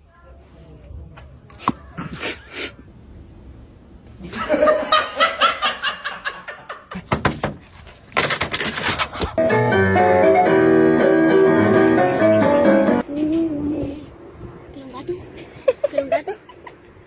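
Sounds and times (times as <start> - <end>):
person laughing: 1.9 - 2.8, 15.4 - 17.0.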